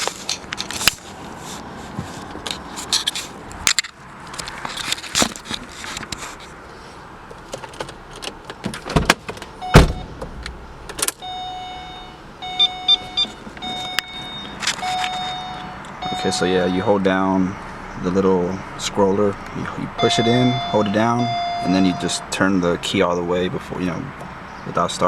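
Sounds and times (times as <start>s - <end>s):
car keys jangling: 7.4s - 16.8s, 20.0s - 22.2s
quick electronic beeps: 11.2s - 16.9s, 20.0s - 22.4s
dashboard chime tones: 11.2s - 17.0s, 20.0s - 22.4s.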